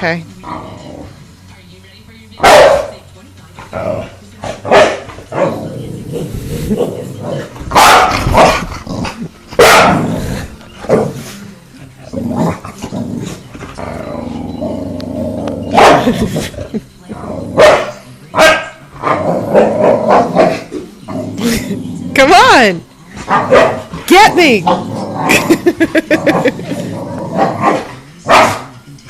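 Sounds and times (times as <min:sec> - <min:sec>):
dog growling: 0:00.4 - 0:01.2, 0:03.6 - 0:11.4, 0:12.0 - 0:18.0, 0:18.8 - 0:22.2, 0:23.1 - 0:28.7
dog barking: 0:02.4 - 0:03.0, 0:04.7 - 0:05.5, 0:07.7 - 0:08.5, 0:09.6 - 0:10.1, 0:15.8 - 0:16.2, 0:17.6 - 0:18.8, 0:23.3 - 0:23.9, 0:27.6 - 0:28.7.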